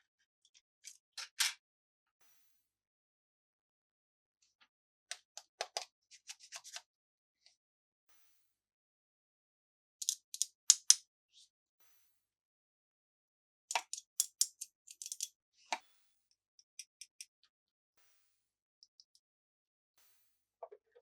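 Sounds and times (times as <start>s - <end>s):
plastic packaging clicks and crackles: 13.7s - 15.3s.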